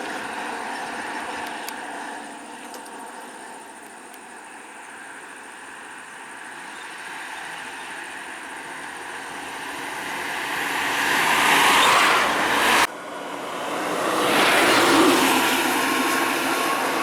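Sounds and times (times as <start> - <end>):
road noise: 0.0 - 17.0
vehicle engine approaching: 6.4 - 17.0.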